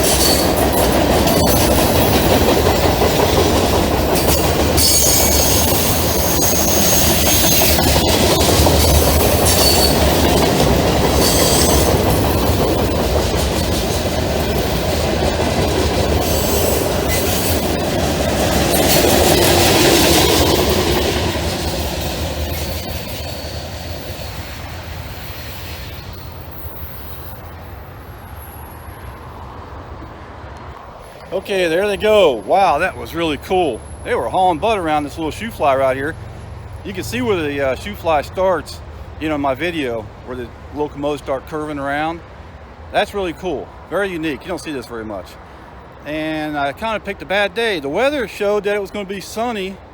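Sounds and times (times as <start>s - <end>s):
train wheels clattering over rail joints: 0.0s - 27.4s
high wheel squeals: 0.0s - 29.6s, 31.0s - 39.2s.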